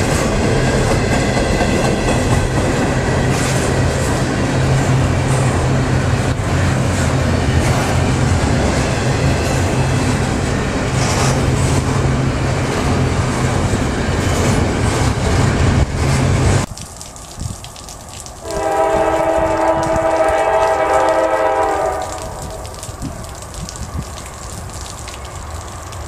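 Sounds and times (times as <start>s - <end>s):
freight train rumbling past: 0.0s - 16.7s, 18.4s - 26.0s
locomotive air horn blast: 18.4s - 22.4s.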